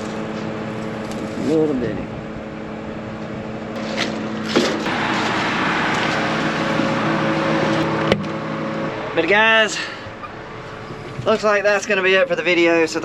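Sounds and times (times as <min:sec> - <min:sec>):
engine hum: 0:00.0 - 0:13.0
even rushing noise: 0:04.8 - 0:11.3.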